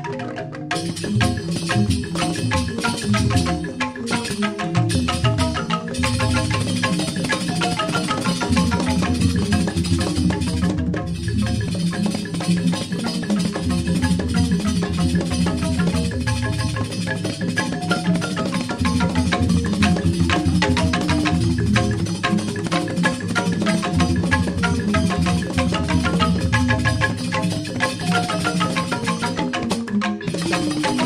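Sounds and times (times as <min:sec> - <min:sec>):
bamboo xylophones interlocking: 0:00.0 - 0:31.0
drums: 0:00.1 - 0:31.0
low bamboo bass: 0:04.9 - 0:12.6, 0:13.3 - 0:29.0.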